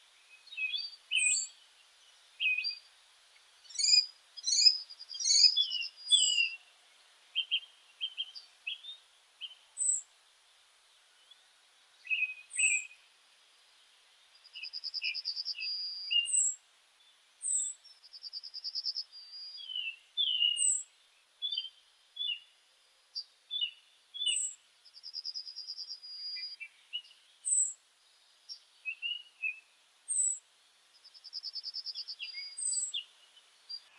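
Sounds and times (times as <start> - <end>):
finches chirping: 3.6 - 6.7, 31.0 - 33.9.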